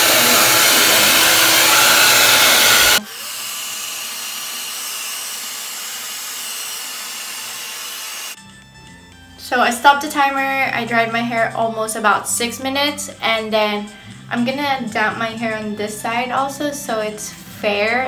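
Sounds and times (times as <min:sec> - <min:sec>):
hair dryer blowing: 0:00.0 - 0:08.4.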